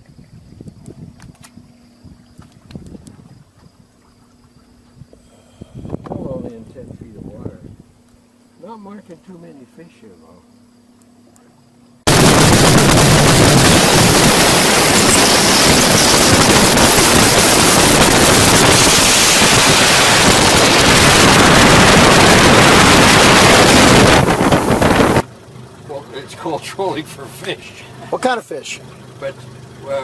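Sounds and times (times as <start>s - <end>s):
wind buffeting microphone: 0.0s - 4.0s, 4.6s - 8.0s, 12.1s - 25.2s.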